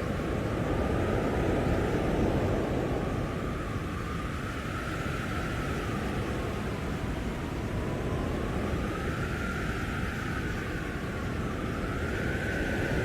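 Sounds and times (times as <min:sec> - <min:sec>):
blizzard wind blowing: 0:00.0 - 0:13.0.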